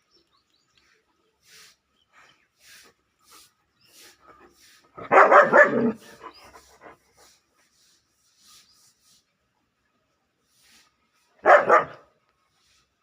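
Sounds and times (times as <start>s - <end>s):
faint breathy sounds: 0.7s - 5.0s
puppy barking: 5.0s - 6.1s, 11.4s - 12.1s.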